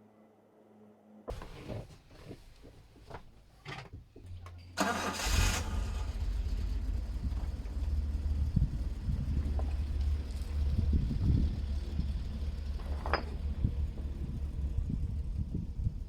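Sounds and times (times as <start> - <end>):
engine cranking: 2.6 - 14.5
engine idling low: 4.2 - 16.0.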